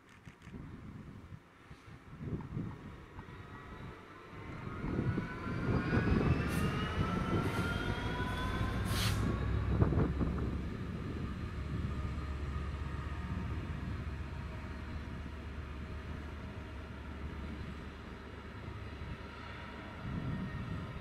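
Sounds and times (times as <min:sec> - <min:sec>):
diesel locomotive passing: 0:01.6 - 0:21.0
rising whine: 0:03.7 - 0:12.8.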